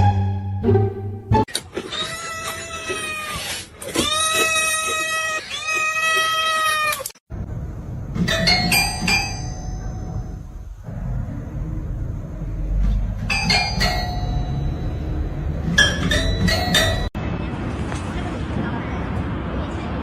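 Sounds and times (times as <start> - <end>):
cat yowling: 1.8 - 7.1
high ringing tones: 8.3 - 10.7, 13.3 - 17.2
low rumbling background: 8.9 - 20.0.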